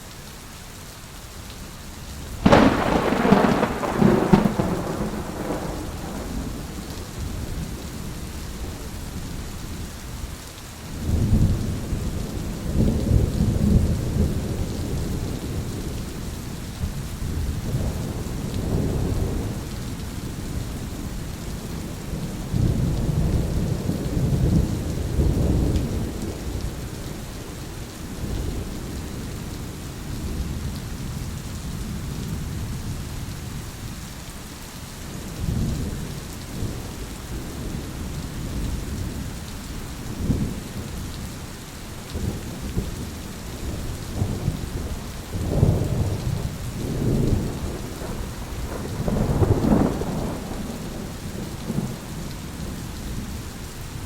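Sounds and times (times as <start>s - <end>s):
steady rain: 0.0s - 54.0s
rolling thunder: 2.4s - 7.8s, 42.1s - 53.4s.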